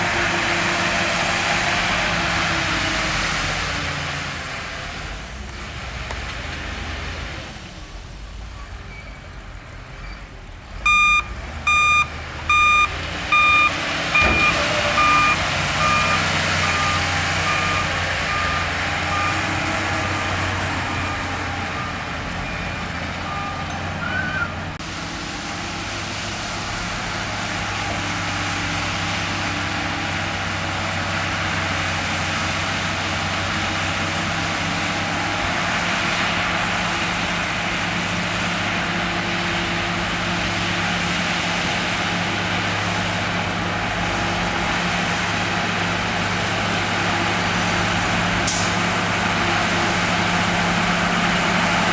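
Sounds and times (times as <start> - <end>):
diesel engines of heavy machines: 0.0 - 51.9
truck reversing alarm beeping: 10.0 - 24.6.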